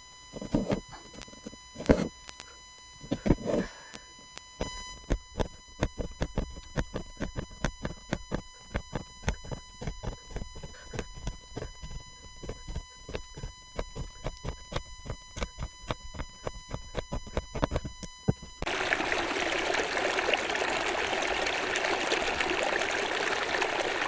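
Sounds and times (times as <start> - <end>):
faint high hum: 0.0 - 24.0
needle tapping through fabric: 4.6 - 18.5.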